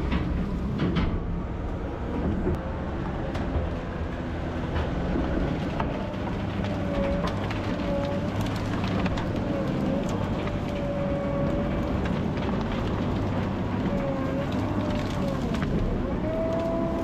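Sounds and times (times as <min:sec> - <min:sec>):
heavy diesel equipment running: 0:00.0 - 0:17.0
knocks and clatter: 0:00.0 - 0:17.0.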